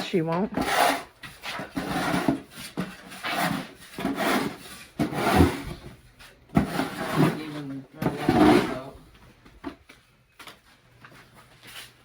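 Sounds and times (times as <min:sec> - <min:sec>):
rough scraping and rubbing: 0:00.6 - 0:05.8, 0:06.5 - 0:09.0.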